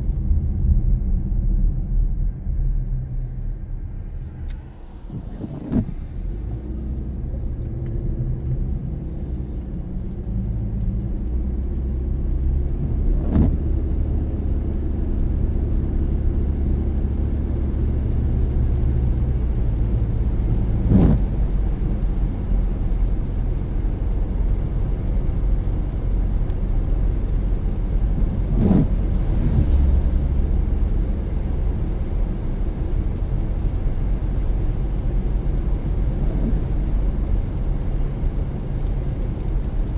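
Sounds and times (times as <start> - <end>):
car engine and tyre rumble: 0.0 - 39.9
windshield wiper swishes: 20.5 - 21.5, 25.0 - 39.9.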